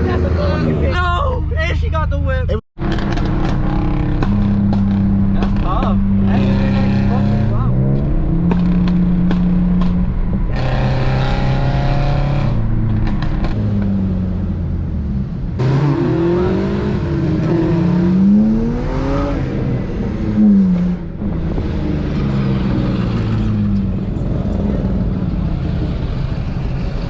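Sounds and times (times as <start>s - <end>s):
car engines running: 0.0s - 27.0s
car engine revving: 2.8s - 27.0s.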